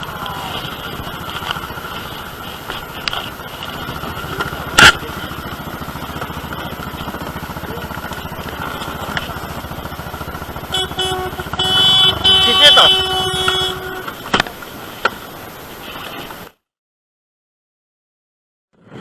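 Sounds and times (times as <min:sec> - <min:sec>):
horn sounding: 0:00.0 - 0:14.6
motorcycle engine running: 0:00.0 - 0:16.4.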